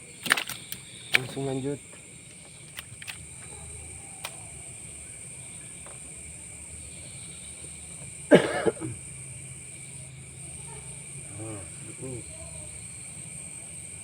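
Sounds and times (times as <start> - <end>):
night insects chirring: 0.0 - 14.0
man coughing: 8.3 - 9.0.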